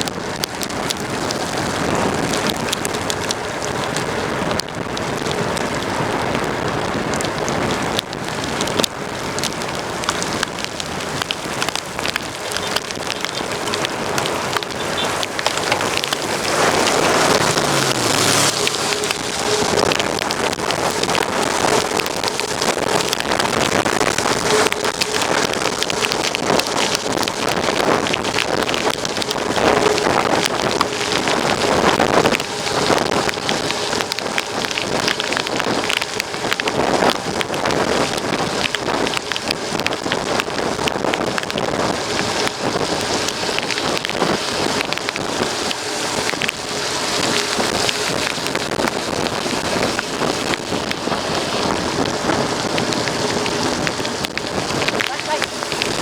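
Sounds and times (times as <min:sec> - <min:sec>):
small ticks and clicks: 0:00.0 - 0:56.0
tyres crackling on loose ground: 0:00.0 - 0:56.0.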